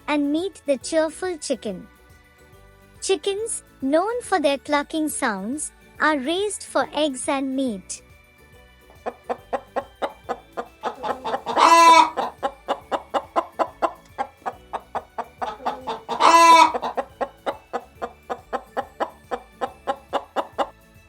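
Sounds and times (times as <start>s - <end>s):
chicken clucking: 8.9s - 20.8s
chicken squawk: 9.0s - 20.7s.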